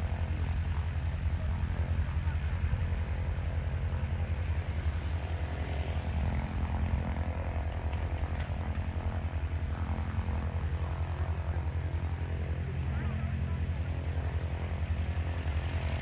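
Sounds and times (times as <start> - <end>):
propeller plane engines droning: 0.0 - 16.0.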